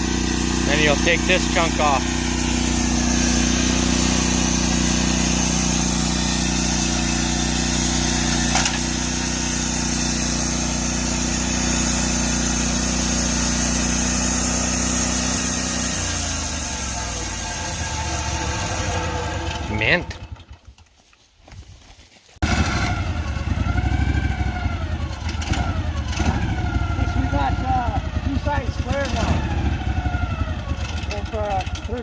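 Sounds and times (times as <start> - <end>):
saw blade cutting log: 0.0 - 20.5
sawmill engine running: 0.0 - 21.0, 22.4 - 32.0.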